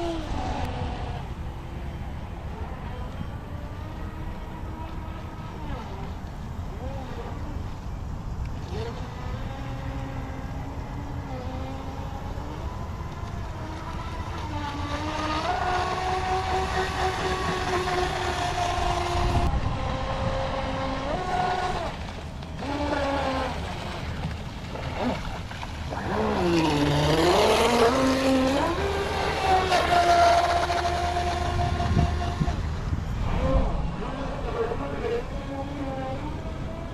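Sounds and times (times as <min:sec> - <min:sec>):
electric motor whining: 0:00.0 - 0:36.9.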